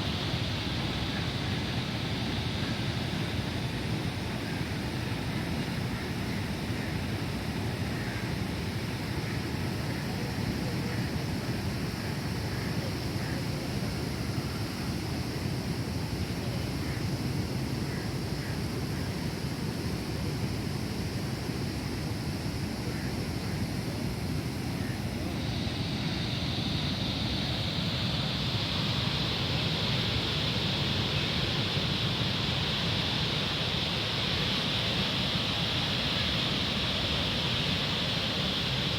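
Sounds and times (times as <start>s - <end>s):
bright hiss: 0.0s - 38.9s
flowing canal water: 0.0s - 38.9s.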